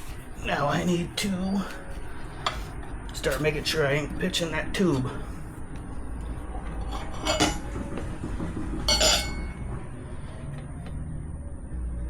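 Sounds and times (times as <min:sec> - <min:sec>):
tire irons clinking on rim: 0:08.9 - 0:09.7.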